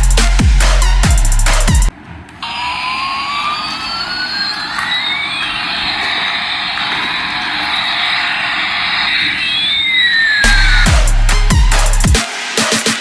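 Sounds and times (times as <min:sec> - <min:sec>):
jet engine hiss and whine: 0:01.9 - 0:12.1.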